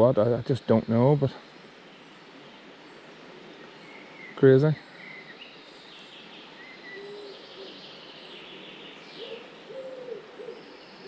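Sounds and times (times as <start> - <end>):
background hiss: 0.0 - 11.0
higher bird chirps: 0.5 - 11.0
bird hooting or cooing: 6.6 - 11.0.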